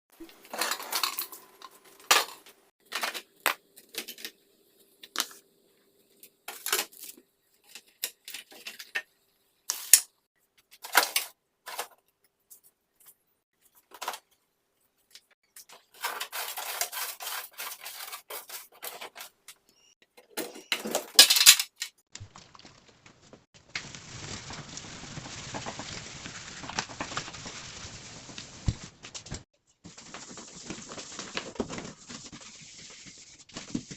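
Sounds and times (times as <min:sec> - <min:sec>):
dishes and containers clinking: 0:00.2 - 0:03.3.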